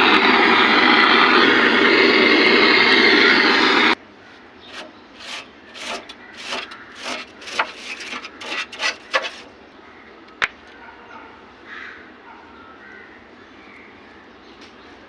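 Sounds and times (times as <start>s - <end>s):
quick rubbing strokes: 4.7s - 9.5s.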